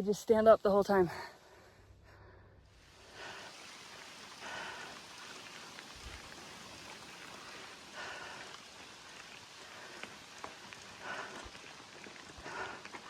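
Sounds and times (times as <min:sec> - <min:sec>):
bicycle tyres on gravel: 0:02.7 - 0:13.0.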